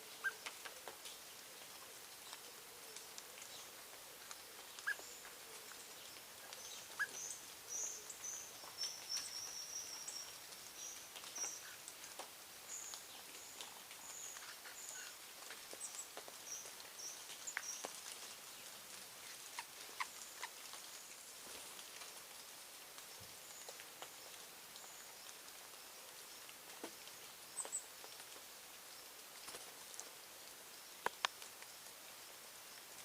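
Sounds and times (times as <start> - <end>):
faint clicks and taps: 31.0 - 31.7.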